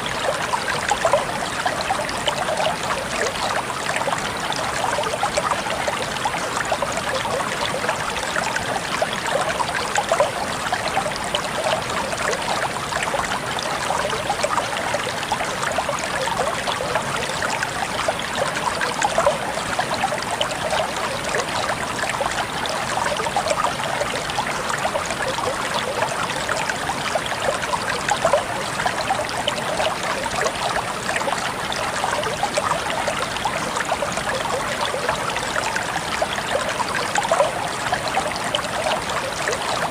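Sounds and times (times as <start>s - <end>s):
water babbling: 0.0s - 39.9s.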